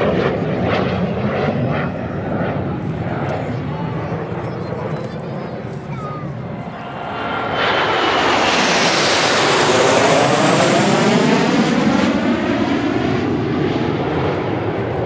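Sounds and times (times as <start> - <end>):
jet flying past: 0.0 - 15.0.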